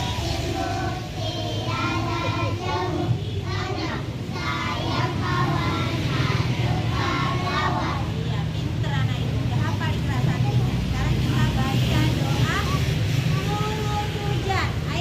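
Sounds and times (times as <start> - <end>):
young children singing: 0.0 - 8.3.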